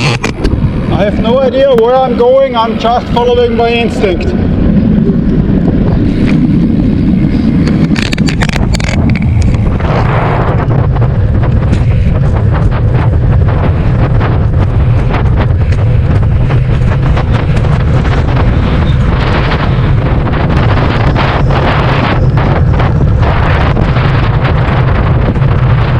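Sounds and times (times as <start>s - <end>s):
wind buffeting microphone: 0.0s - 25.9s
small clicks and knocks: 7.7s - 9.6s.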